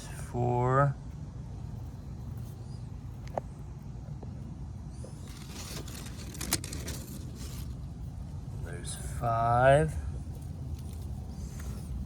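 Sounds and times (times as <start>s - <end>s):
low background rumble: 0.0s - 12.0s
hands scraping through soil: 5.0s - 8.0s.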